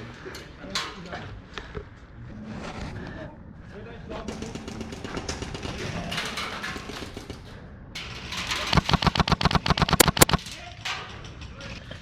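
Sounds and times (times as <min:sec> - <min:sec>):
airsoft gun automatic burst: 0:08.7 - 0:10.4.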